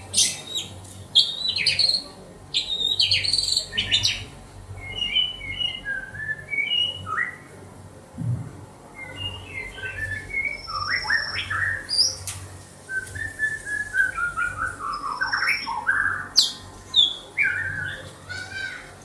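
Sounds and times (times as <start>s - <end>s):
bird singing chattering phrases: 0.0s - 5.8s, 9.0s - 12.2s, 14.0s - 18.9s
low knock: 8.2s - 8.6s.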